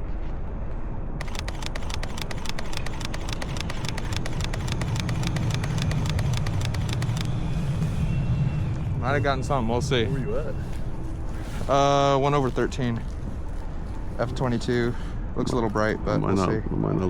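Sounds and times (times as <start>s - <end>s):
camera shutter burst clicks: 1.2s - 8.1s
streetcar rumble: 6.0s - 17.0s.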